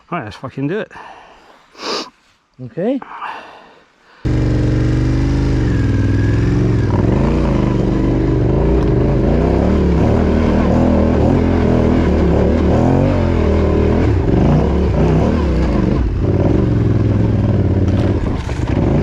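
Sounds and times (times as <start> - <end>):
motorcycle engine revving: 4.3 - 19.0.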